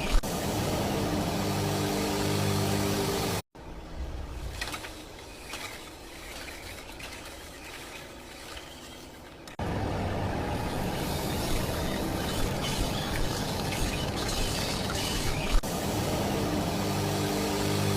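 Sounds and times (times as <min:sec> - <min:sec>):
plastering machine scraping: 0:04.5 - 0:09.6, 0:10.6 - 0:15.6
motor humming: 0:04.5 - 0:17.9.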